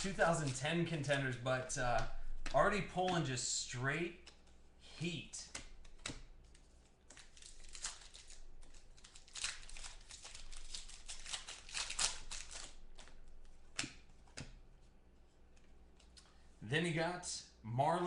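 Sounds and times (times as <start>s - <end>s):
card packs crinkling and rustling: 0.0s - 1.2s, 6.5s - 13.3s.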